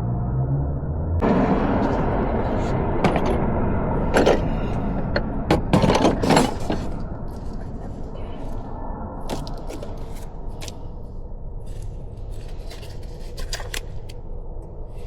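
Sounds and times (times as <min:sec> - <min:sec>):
low steady rumble: 0:00.0 - 0:15.0
sharp clicks and knocks: 0:04.1 - 0:07.6.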